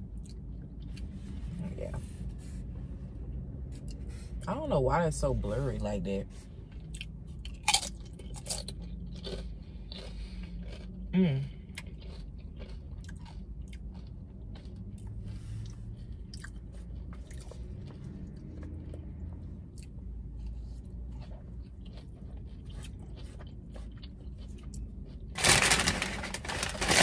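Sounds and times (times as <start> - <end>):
person chewing food: 0.0 - 1.4, 6.5 - 27.0
low steady hum: 0.0 - 27.0
small crunches and clicks: 25.4 - 27.0.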